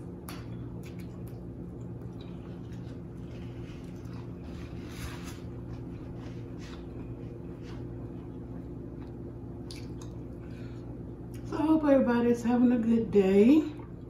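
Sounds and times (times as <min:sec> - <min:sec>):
steady low hum: 0:00.0 - 0:14.0
wet chewing and mouth smacks: 0:00.1 - 0:10.4.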